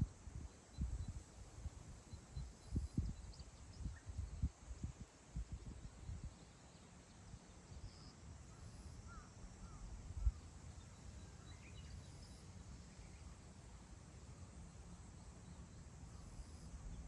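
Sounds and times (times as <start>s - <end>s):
wind rumbling on microphone: 0.0s - 6.5s, 9.1s - 10.4s
faint bird chirps: 2.0s - 13.6s, 14.6s - 17.0s.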